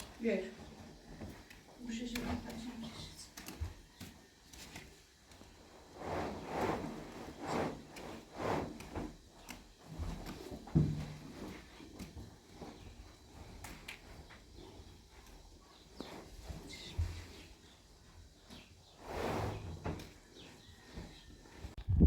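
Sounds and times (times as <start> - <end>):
handling and scraping: 0.0 - 21.8.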